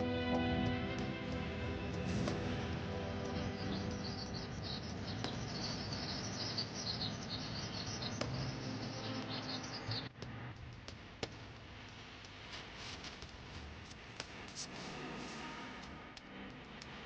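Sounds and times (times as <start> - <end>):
small birds chirping: 0.6 - 10.1.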